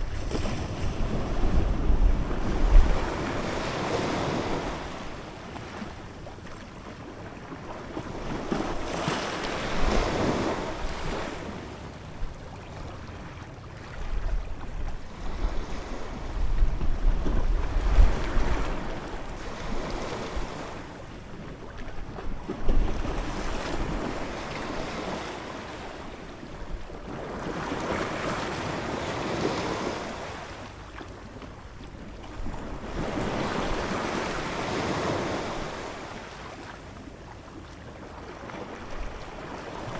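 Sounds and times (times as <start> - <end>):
wind buffeting microphone: 0.0 - 3.5, 14.1 - 19.4.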